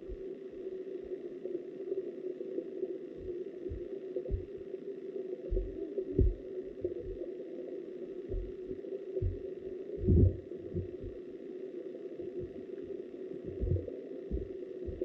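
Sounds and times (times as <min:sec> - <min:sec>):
underwater stream rush: 0:02.4 - 0:15.0
dull underwater thuds: 0:03.2 - 0:04.6, 0:05.5 - 0:07.2, 0:08.3 - 0:11.2, 0:13.4 - 0:15.0.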